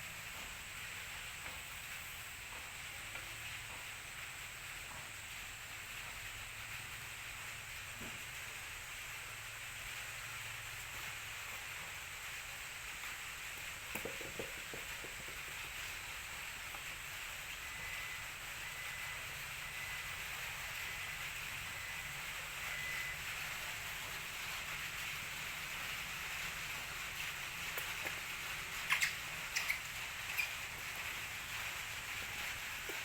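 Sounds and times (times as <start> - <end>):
steady rain hiss: 0.0 - 33.0
light knocks: 13.9 - 15.6.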